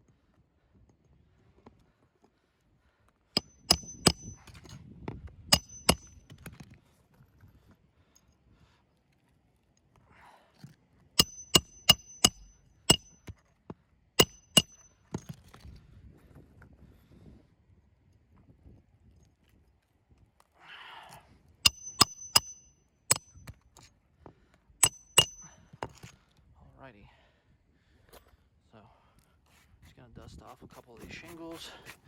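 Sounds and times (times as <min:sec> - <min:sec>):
hammer striking metal: 0:03.4 - 0:04.4, 0:05.5 - 0:06.2, 0:11.2 - 0:13.2, 0:14.2 - 0:14.9, 0:21.7 - 0:23.3, 0:24.8 - 0:25.5.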